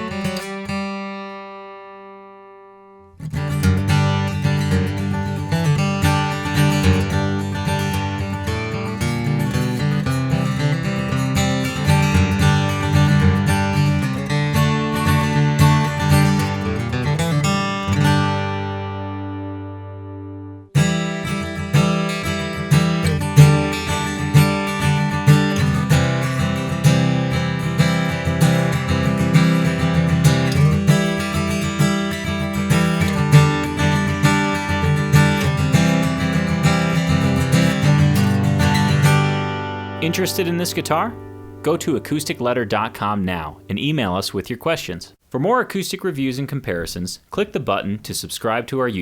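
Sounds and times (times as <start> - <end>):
acoustic guitar strumming: 0.0 - 44.8.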